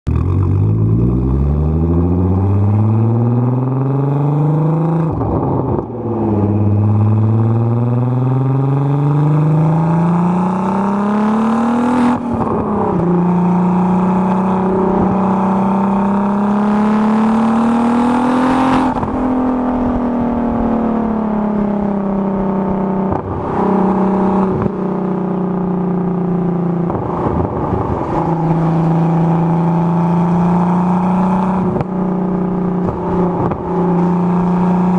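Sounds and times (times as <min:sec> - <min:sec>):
car engine accelerating hard: 0:00.1 - 0:34.9.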